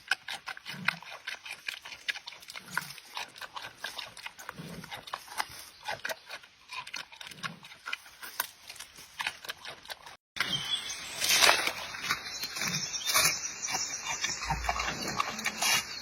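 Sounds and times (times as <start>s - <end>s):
panda chewing and crunching: 0.0s - 16.0s.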